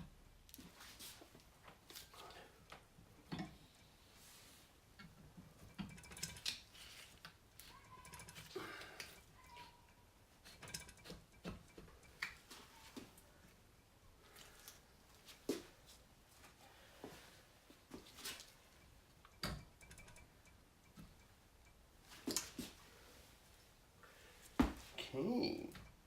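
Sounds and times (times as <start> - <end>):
metallic clinks of tools: 5.6 - 6.9, 7.6 - 12.2, 18.8 - 22.5.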